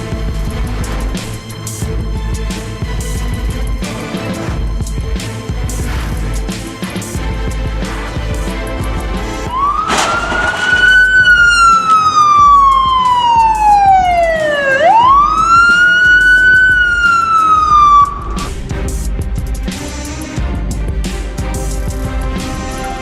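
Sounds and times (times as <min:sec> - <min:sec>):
background music: 0:00.0 - 0:23.0
emergency siren wailing: 0:09.5 - 0:18.5.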